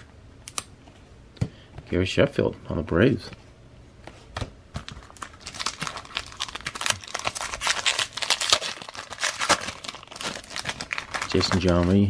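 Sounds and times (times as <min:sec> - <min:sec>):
card pack wrapper crinkling: 0:04.8 - 0:12.0.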